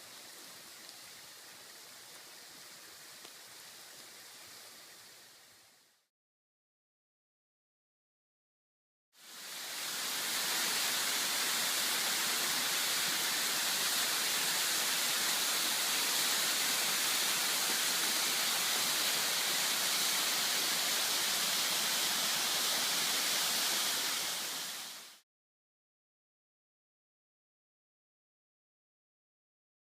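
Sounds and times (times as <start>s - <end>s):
waterfall rushing: 9.2s - 25.2s.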